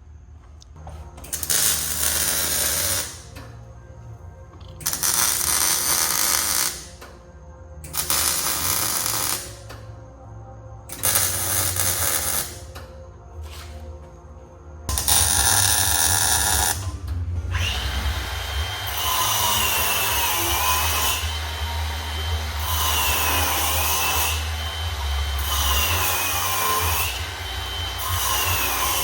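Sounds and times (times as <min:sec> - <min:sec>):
power tool whining: 0:14.9 - 0:29.0.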